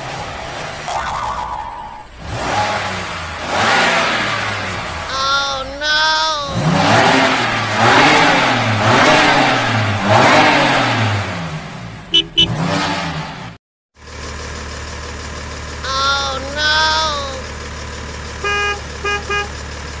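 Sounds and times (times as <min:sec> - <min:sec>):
car engine revving: 0:02.0 - 0:05.1, 0:06.5 - 0:13.6.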